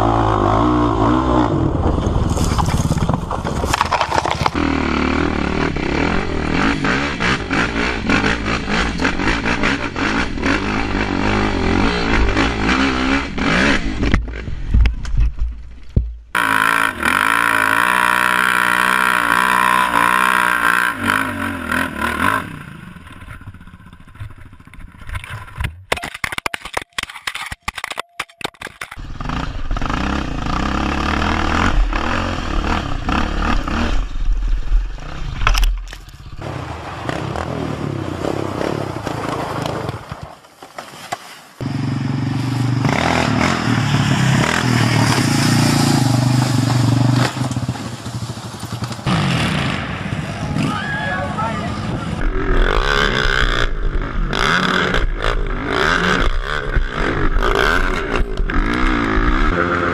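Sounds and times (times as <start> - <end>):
quad bike engines revving: 0.0 - 3.3, 4.4 - 14.7, 16.3 - 24.6, 29.0 - 34.2, 36.4 - 40.0, 41.6 - 59.9.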